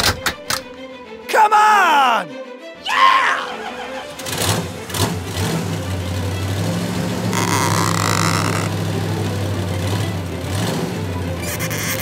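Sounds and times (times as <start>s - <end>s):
car engine running: 4.1s - 12.0s.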